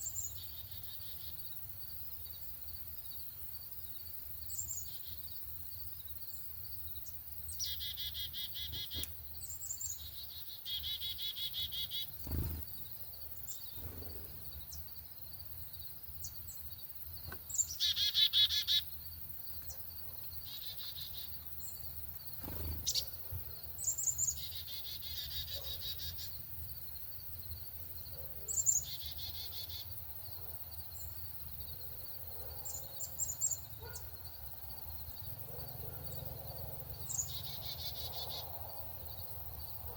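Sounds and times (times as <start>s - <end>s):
songbird trilled song: 0.0s - 30.1s, 30.7s - 34.2s, 37.0s - 39.9s.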